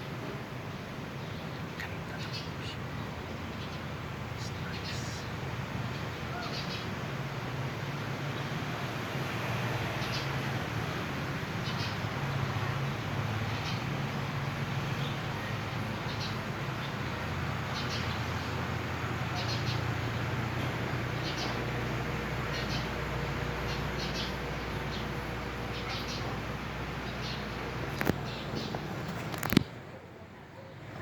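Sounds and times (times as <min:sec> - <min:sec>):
background hiss: 0:00.0 - 0:28.7
bird chirping: 0:01.2 - 0:07.0, 0:14.5 - 0:29.6.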